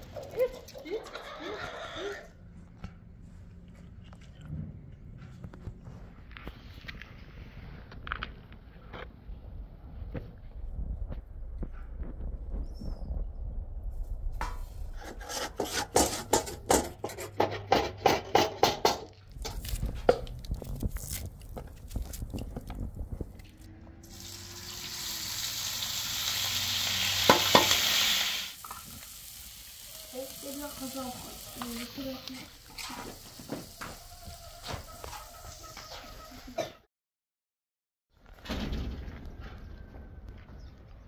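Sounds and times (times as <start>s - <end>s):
metal utensil clank: 15.5s - 19.1s
food frying in a pan: 24.1s - 34.1s.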